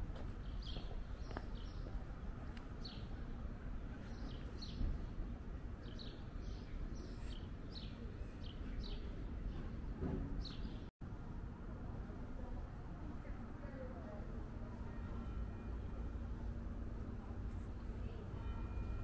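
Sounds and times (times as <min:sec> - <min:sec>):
low city rumble: 0:00.0 - 0:19.0
small birds chirping: 0:00.3 - 0:09.8, 0:10.4 - 0:10.9.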